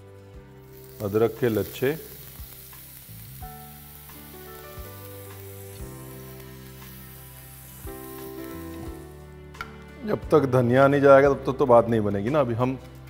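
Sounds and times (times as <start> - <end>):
background music with held chords: 0.0 - 13.0
chillies sizzling in hot oil: 0.6 - 9.4.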